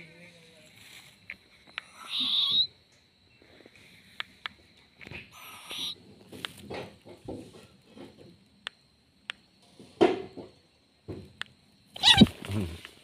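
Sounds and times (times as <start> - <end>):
owlet raspy hissing calls: 1.8 - 2.7, 5.4 - 6.0, 12.0 - 12.3.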